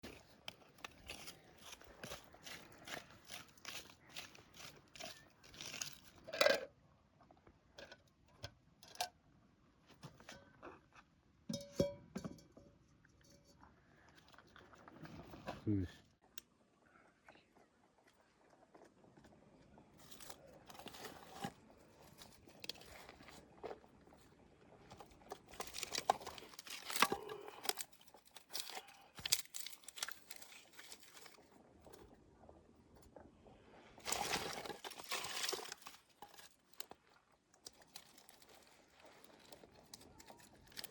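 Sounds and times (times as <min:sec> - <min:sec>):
crinkling and rustling: 0:00.0 - 0:08.0, 0:17.2 - 0:33.3, 0:34.0 - 0:40.9.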